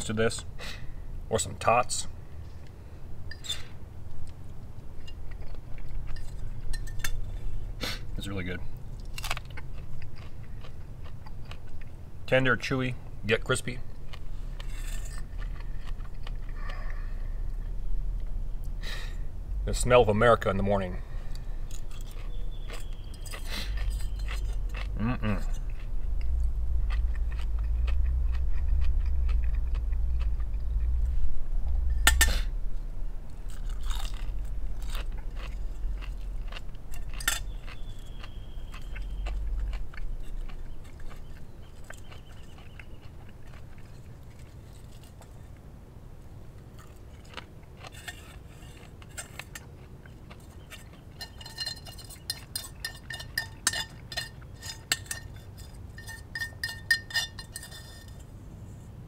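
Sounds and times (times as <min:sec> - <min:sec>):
chewing crispy bacon: 0:04.1 - 0:32.5, 0:33.2 - 0:57.9
low rumble: 0:13.0 - 0:46.1
utensils clinking: 0:21.7 - 0:25.8, 0:36.9 - 0:38.2, 0:50.7 - 0:58.2.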